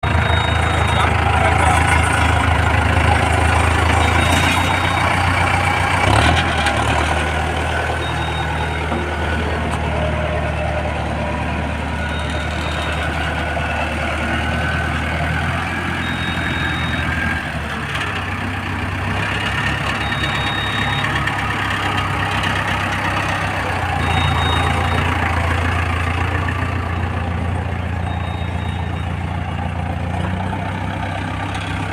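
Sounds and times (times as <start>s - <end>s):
tractor diesel engine running: 0.0s - 31.9s
short high beep: 20.0s - 21.1s, 24.0s - 25.1s, 28.0s - 29.2s.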